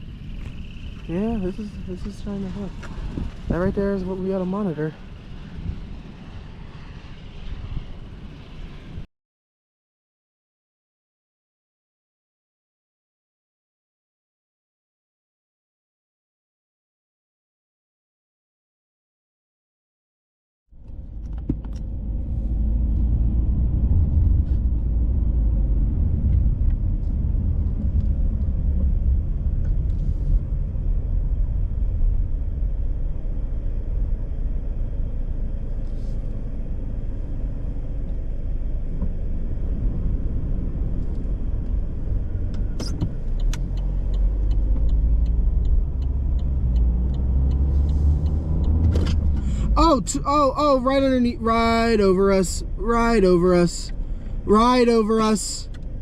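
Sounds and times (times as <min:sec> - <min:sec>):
car road and engine rumble: 0:00.0 - 0:09.1, 0:20.7 - 0:56.0.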